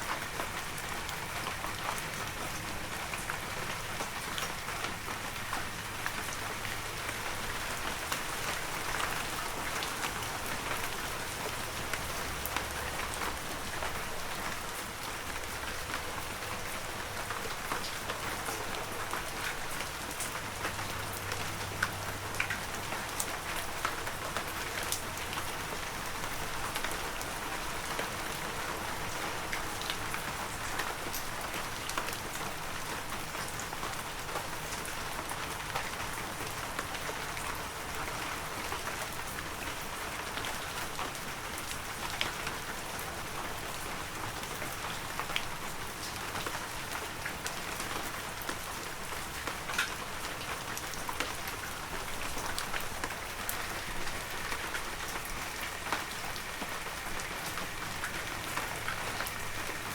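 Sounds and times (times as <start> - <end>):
raindrops ticking: 49.5 - 59.9
heavy rain hissing: 53.0 - 59.9.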